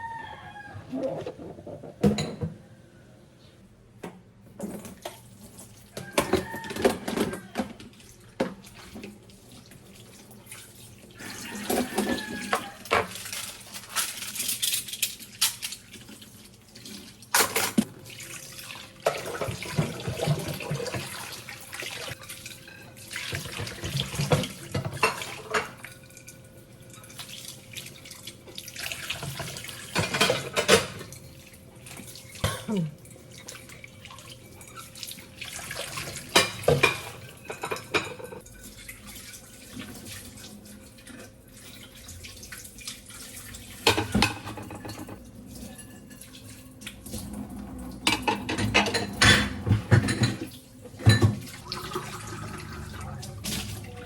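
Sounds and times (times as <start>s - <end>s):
dishes and cutlery clinking: 1.4s - 2.6s, 29.9s - 31.0s, 36.3s - 38.4s, 43.8s - 46.6s, 48.1s - 51.6s.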